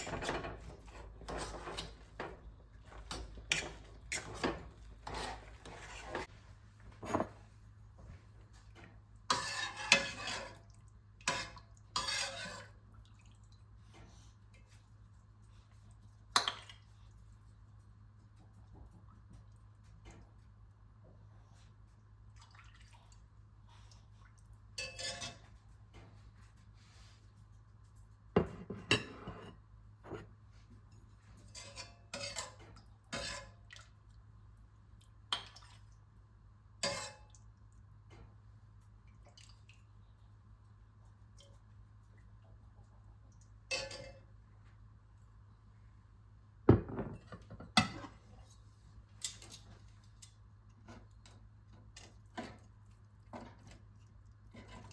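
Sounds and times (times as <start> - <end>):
dishes and utensils clinking: 0.0 - 6.3, 6.9 - 7.5, 28.4 - 30.3, 43.7 - 44.3.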